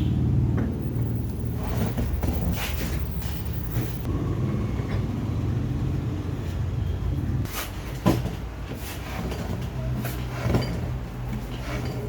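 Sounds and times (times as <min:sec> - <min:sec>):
metal clinks and scrapes: 0:00.8 - 0:04.1, 0:07.5 - 0:12.0.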